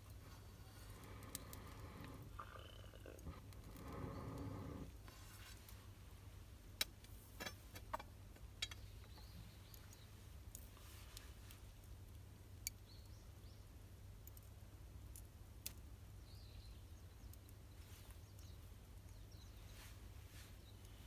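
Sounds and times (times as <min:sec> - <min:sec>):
campfire wood popping: 0:00.0 - 0:05.1
low steady hum: 0:00.0 - 0:11.3.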